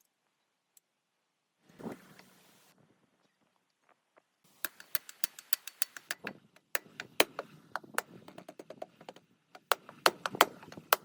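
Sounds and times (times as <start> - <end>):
tools clicking on metal parts: 4.6 - 11.0.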